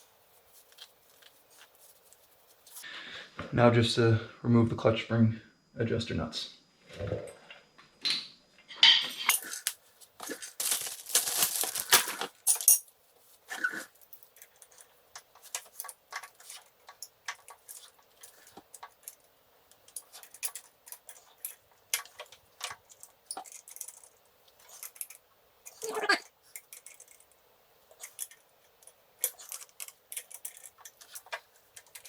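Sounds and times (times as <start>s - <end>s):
steel parts clinking and rattling: 10.4s - 12.9s, 14.0s - 32.0s.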